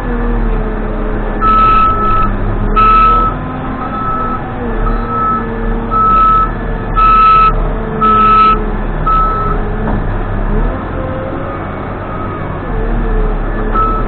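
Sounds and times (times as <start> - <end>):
diesel engine running: 0.0 - 14.0
reversing alarm beeping: 1.4 - 9.6, 13.8 - 14.0.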